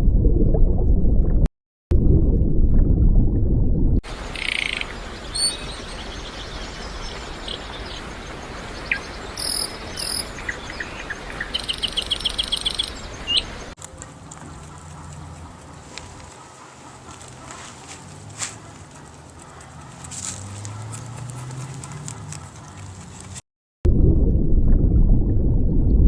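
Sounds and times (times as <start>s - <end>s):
steady outdoor hiss: 4.1s - 19.9s
high-pitched animal chirps: 4.3s - 5.7s, 11.5s - 13.5s.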